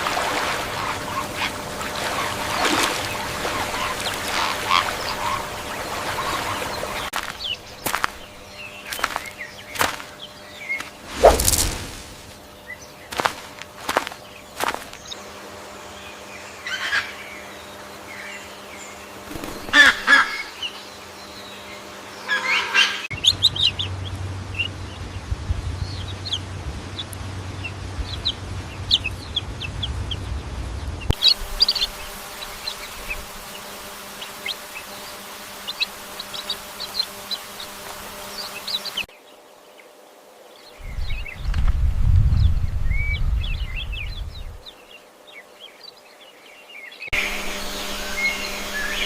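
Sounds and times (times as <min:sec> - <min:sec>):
low hum: 0:00.0 - 0:39.1, 0:47.1 - 0:49.0
ducks quacking: 0:00.1 - 0:10.2, 0:19.5 - 0:20.7
small birds chirping: 0:00.6 - 0:41.6, 0:42.3 - 0:49.0.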